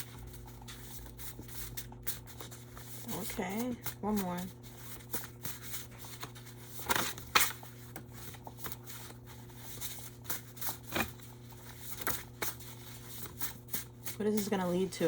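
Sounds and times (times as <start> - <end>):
cards rustling and snapping: 0.0 - 14.2
steady low hum: 0.0 - 15.0.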